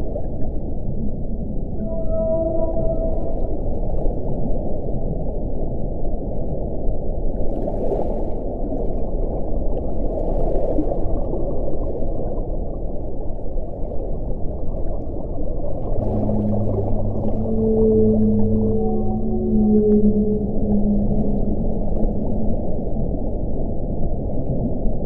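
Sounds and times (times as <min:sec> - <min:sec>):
low steady howling tone: 0:00.0 - 0:07.5, 0:11.1 - 0:25.0
wind blowing: 0:15.3 - 0:25.0.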